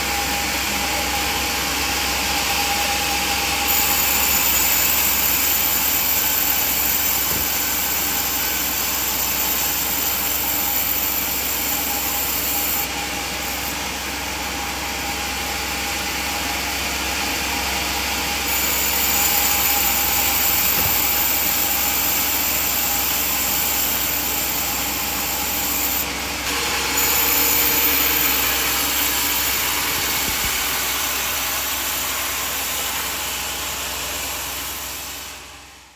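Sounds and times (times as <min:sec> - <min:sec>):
band saw cutting wood: 0:00.0 - 0:35.9
high whine: 0:26.4 - 0:35.9.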